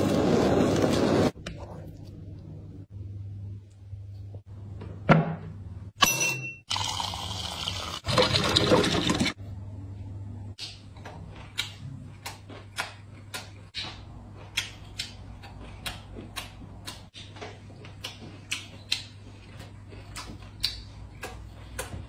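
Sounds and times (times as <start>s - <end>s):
person chewing close to microphone: 11.2s - 22.0s.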